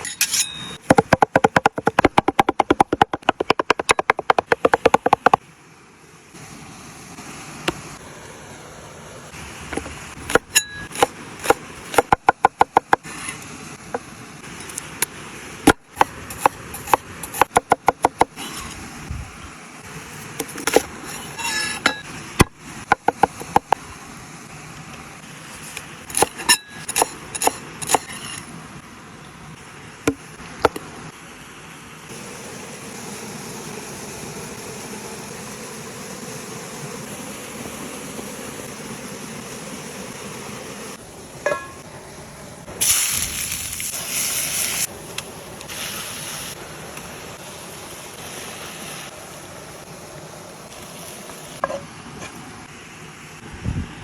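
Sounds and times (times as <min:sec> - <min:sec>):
cooking hiss: 0:00.0 - 0:53.5
cookware clinking and knocking: 0:41.5 - 0:41.8.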